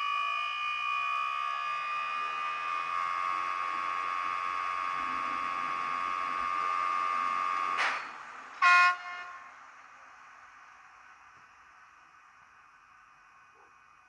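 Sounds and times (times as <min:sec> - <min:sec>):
electric locomotive hum: 0:00.0 - 0:14.0
loud horn blast: 0:08.6 - 0:09.6.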